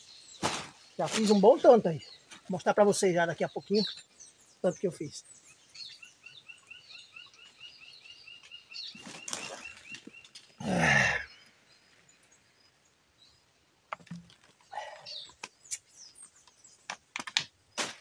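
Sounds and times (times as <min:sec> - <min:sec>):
rustle: 0:00.0 - 0:02.8, 0:05.2 - 0:18.0.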